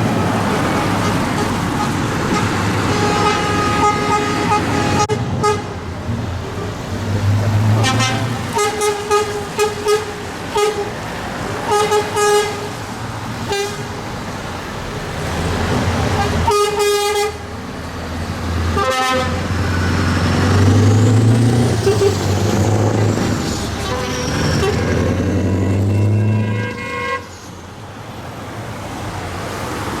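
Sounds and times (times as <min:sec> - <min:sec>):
tractor engines droning: 0:00.0 - 0:30.0
vehicle horns tooting: 0:00.8 - 0:05.8, 0:07.8 - 0:11.0, 0:11.6 - 0:12.8, 0:13.5 - 0:13.9, 0:16.2 - 0:17.5, 0:18.7 - 0:19.5, 0:21.8 - 0:22.3, 0:23.8 - 0:27.4
high sliding tone: 0:20.8 - 0:27.6.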